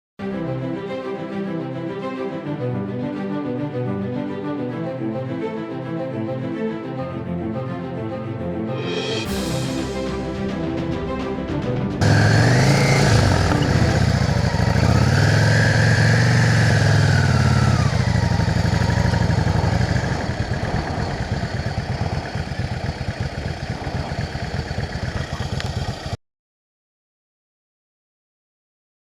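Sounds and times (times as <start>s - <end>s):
motorcycle engine revving: 12.0s - 26.2s.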